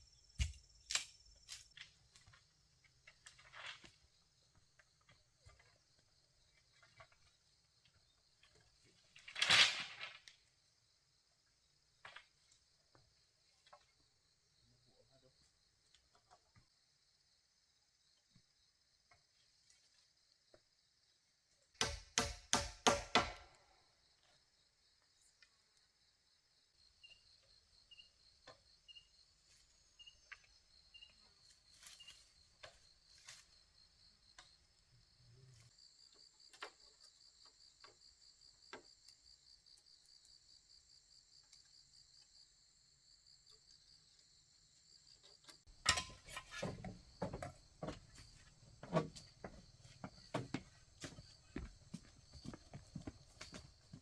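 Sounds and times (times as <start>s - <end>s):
crickets trilling: 0.0s - 1.9s, 24.0s - 54.0s
knocks and thumps: 45.7s - 54.0s.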